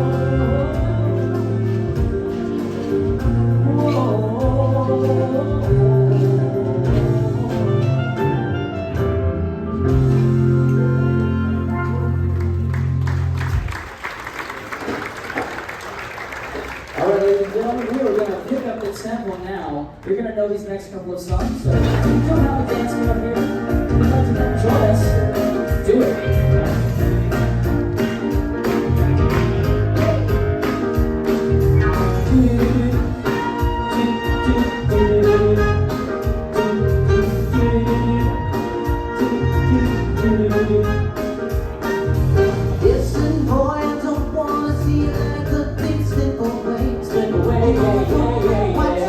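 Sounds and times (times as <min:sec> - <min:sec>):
live band playing: 0:00.0 - 0:14.0, 0:21.2 - 0:49.0
audience applause: 0:12.3 - 0:19.7, 0:27.8 - 0:30.8.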